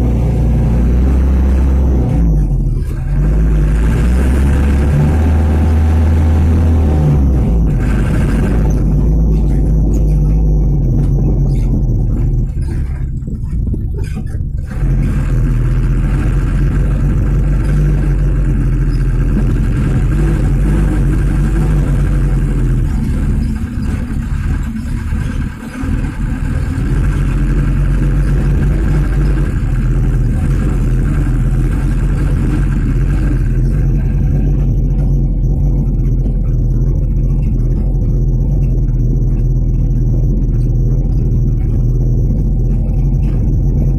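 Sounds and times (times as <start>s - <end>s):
truck diesel engine running: 0.0s - 43.9s.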